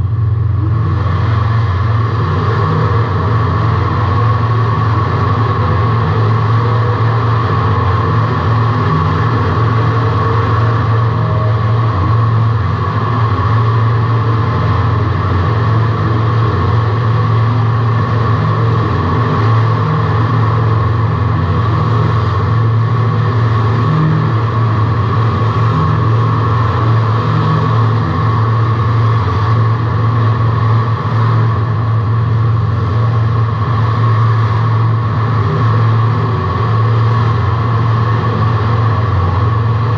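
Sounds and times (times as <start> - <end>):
race car engine drone: 0.0 - 39.9.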